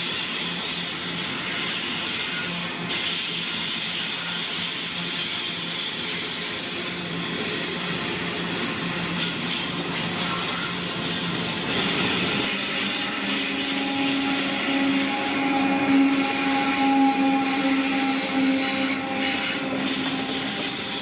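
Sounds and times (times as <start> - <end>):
held whine: 10.1 - 21.0
train wagons rumbling past: 11.3 - 21.0.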